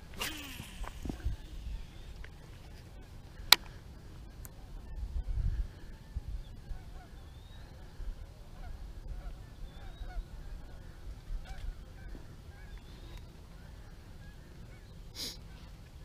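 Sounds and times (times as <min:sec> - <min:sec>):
distant birds honking: 0:00.1 - 0:15.8.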